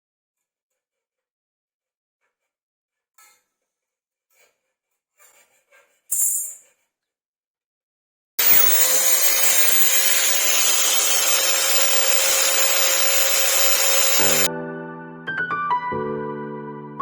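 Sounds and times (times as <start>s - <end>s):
power tool running: 8.4s - 14.5s
piano music: 12.8s - 17.0s.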